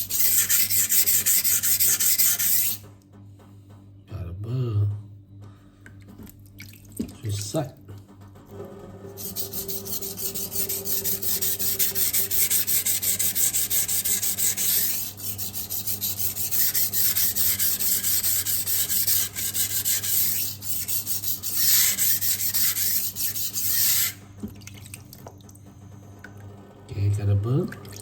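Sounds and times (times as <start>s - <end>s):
knife scraping on sharpening stone: 9.2s - 24.2s.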